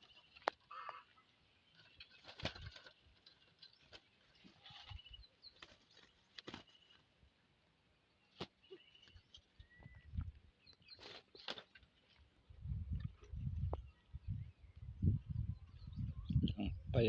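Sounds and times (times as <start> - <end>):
faint rustles and clicks: 0.0 - 7.1.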